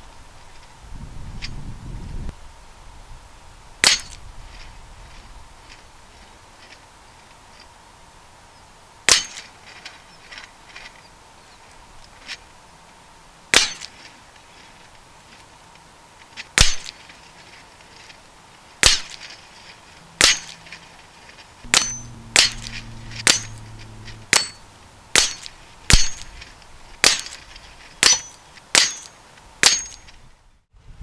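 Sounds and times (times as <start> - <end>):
steel plate ringing: 21.7 - 27.4.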